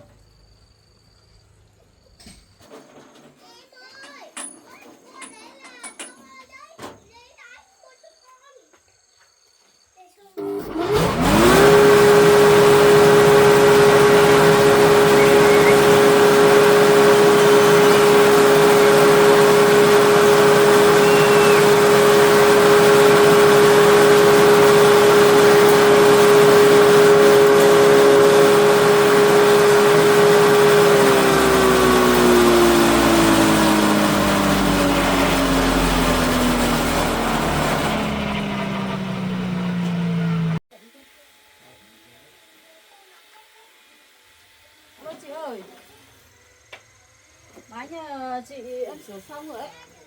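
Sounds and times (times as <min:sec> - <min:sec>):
electric motor humming: 0:10.4 - 0:40.6
motor coasting down: 0:10.4 - 0:40.6.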